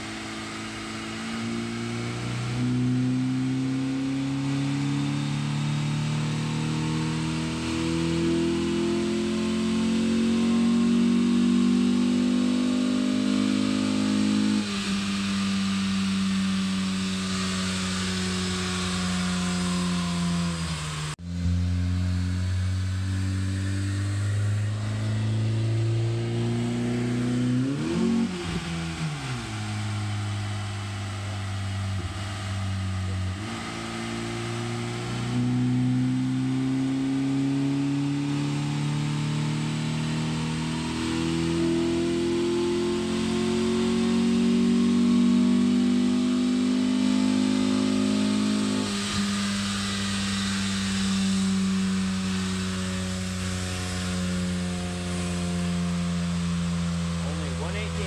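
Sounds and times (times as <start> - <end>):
car engine revving on dyno: 0.0 - 58.0.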